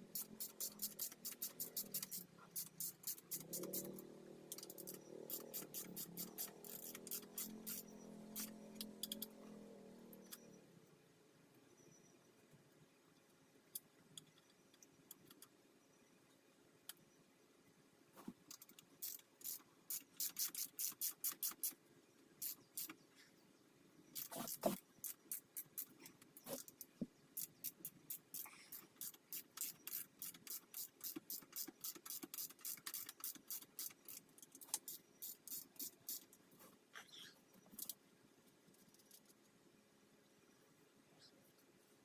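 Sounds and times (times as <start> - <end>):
ratchet wrench clicking: 0.1 - 9.3, 19.0 - 21.8, 27.4 - 36.3.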